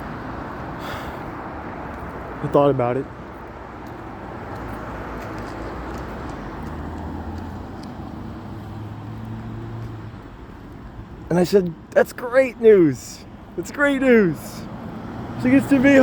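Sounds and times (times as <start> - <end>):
passing vehicles rushing: 0.0 - 16.0.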